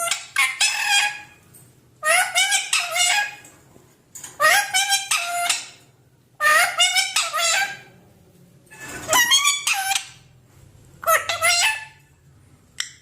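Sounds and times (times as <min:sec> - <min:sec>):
parrot calling loudly: 0:00.0 - 0:01.4, 0:02.0 - 0:03.5, 0:04.4 - 0:07.9, 0:08.8 - 0:10.3, 0:11.0 - 0:12.0.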